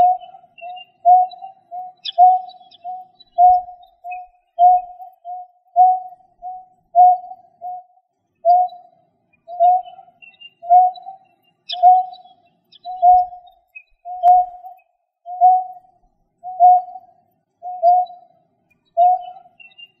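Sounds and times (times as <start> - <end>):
bird hooting: 0.0 - 7.9, 9.5 - 12.2, 12.8 - 13.5, 15.3 - 15.8, 16.4 - 18.2, 19.0 - 19.7
faint high chirps: 0.0 - 20.0.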